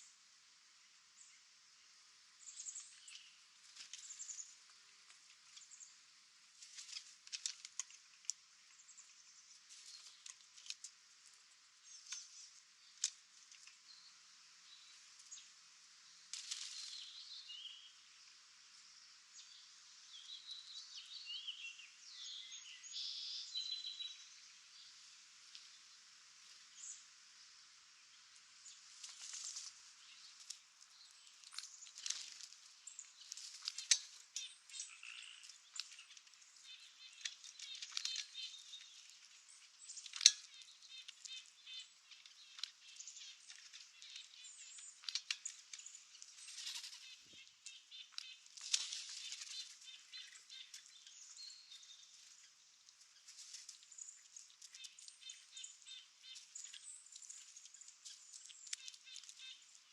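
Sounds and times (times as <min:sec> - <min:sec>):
sharp clicks and rustles: 0:29.0 - 0:36.4.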